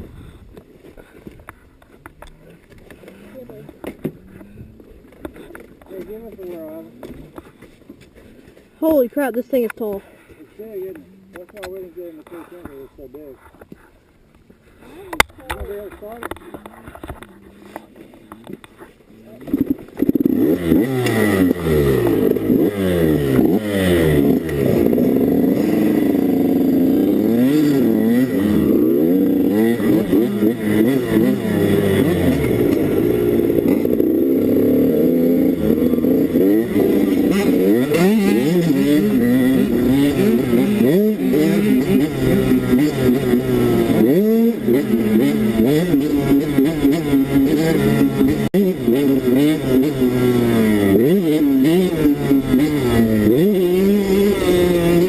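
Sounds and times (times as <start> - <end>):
dirt bike engine revving: 19.4 - 55.0.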